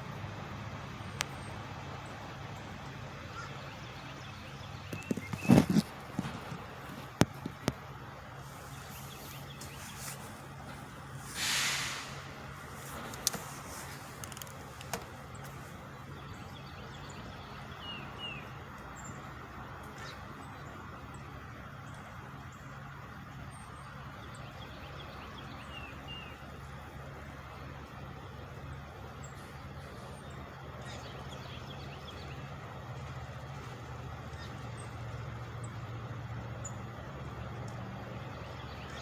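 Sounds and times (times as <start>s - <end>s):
engine running at high speed: 4.8s - 16.3s.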